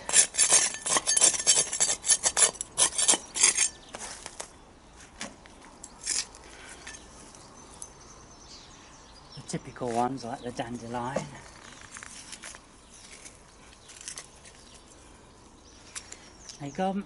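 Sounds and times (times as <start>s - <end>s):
weeding tool scraping soil: 0.0s - 4.5s.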